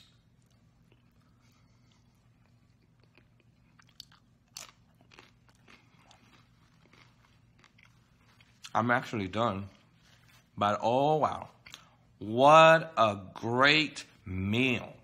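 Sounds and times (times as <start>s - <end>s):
chewing crisp shell: 2.3s - 8.8s.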